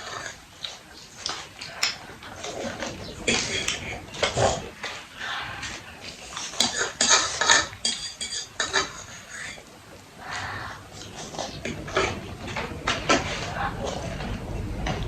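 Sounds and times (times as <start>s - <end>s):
cutlery scraping and clinking dishes: 0.0s - 9.3s.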